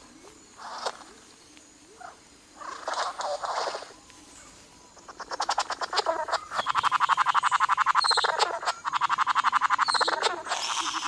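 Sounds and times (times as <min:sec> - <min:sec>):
bird rattling call: 0:02.0 - 0:04.0, 0:05.0 - 0:11.0.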